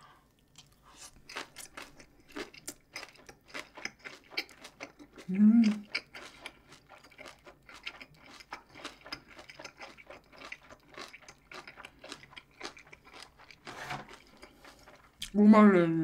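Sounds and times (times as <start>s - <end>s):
person chewing crunchy food: 0.3s - 15.3s.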